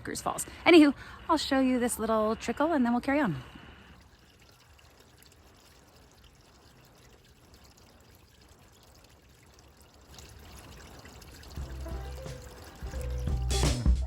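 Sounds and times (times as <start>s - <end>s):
water trickling over rock: 3.6s - 13.7s.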